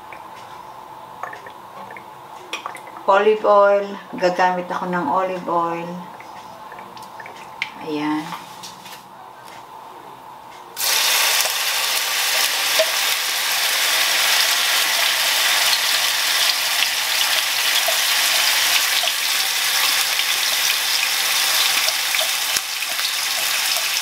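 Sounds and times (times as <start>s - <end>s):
paste sizzling in hot oil: 10.8s - 24.0s.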